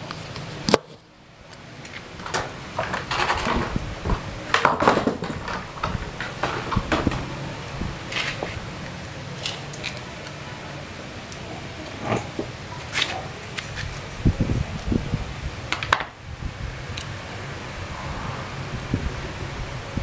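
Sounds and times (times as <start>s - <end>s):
tools clattering on sheet metal: 2.2s - 3.8s, 4.5s - 7.5s.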